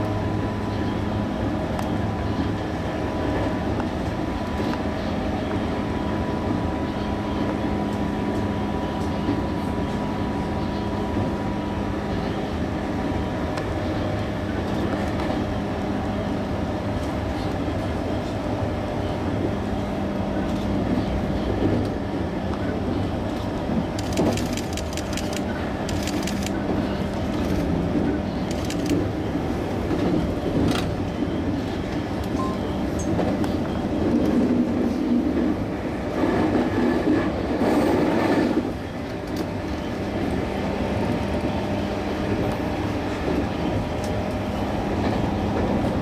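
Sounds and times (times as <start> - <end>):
train wheels rumbling on rail: 0.0 - 46.0
wheel clicks over rail joints: 24.0 - 26.6.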